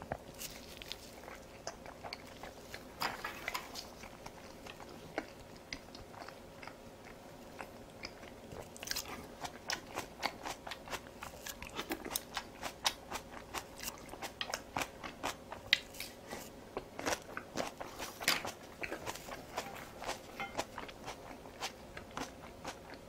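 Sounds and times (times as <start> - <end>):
person chewing crunchy food: 0.0 - 23.0.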